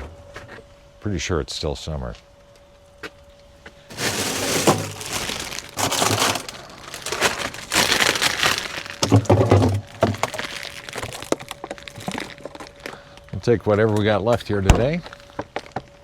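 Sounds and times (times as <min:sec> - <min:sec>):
rustling and crinkling: 0:03.9 - 0:15.9.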